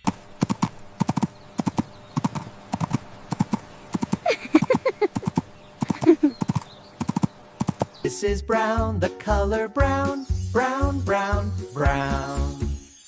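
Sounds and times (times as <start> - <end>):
horse hooves clip-clopping: 0.0 - 8.0.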